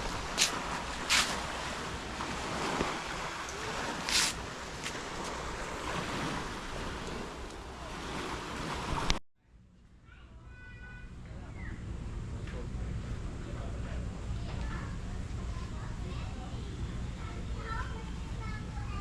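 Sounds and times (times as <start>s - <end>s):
waves rushing: 0.0s - 9.2s
wind: 0.0s - 19.0s.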